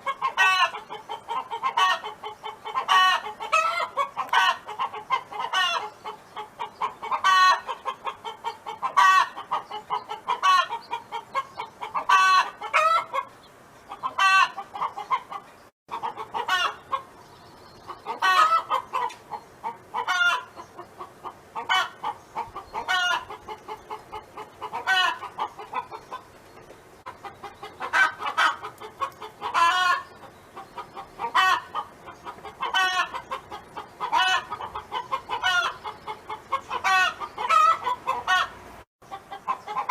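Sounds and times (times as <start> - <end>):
hen clucking: 0.0 - 39.9.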